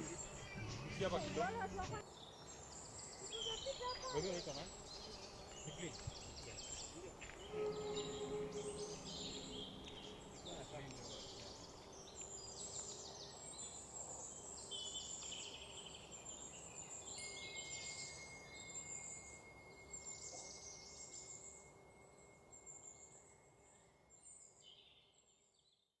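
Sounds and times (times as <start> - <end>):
birds chirping and trilling: 0.0 - 25.8
thin steady high tone: 3.2 - 11.7, 16.2 - 24.6.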